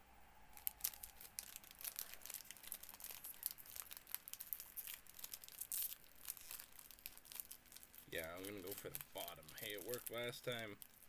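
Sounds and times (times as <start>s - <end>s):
card pack wrapper crinkling: 0.5s - 11.0s.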